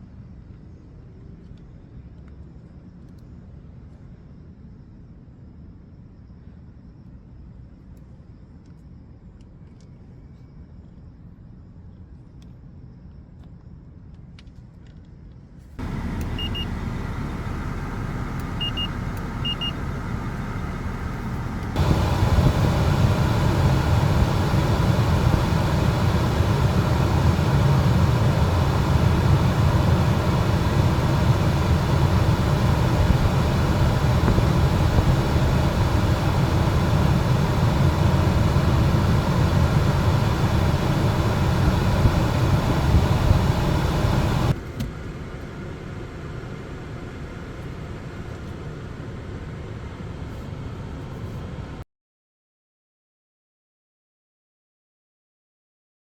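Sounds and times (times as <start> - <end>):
control panel beeps: 15.8 - 20.0
car climate blower rushing: 15.8 - 44.6.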